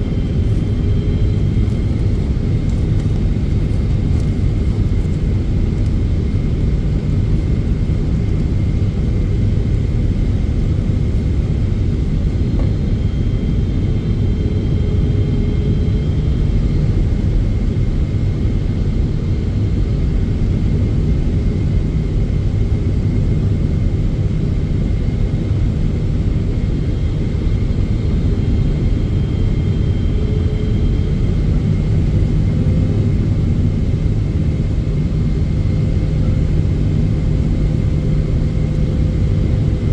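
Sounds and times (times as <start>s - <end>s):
faint steady whine: 0.0s - 16.6s, 25.5s - 39.9s
airplane cabin rumble: 0.0s - 18.2s, 24.1s - 39.9s.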